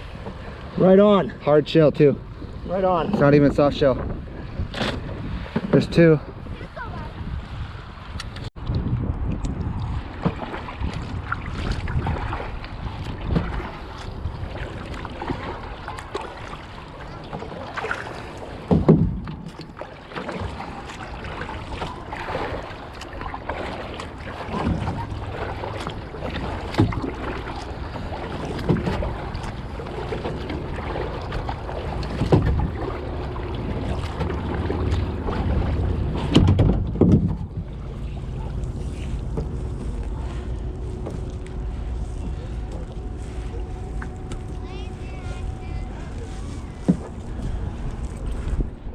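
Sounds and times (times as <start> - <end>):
paddle strokes in water: 0.0 - 48.9
wind noise on microphone: 2.3 - 15.9, 26.7 - 48.9.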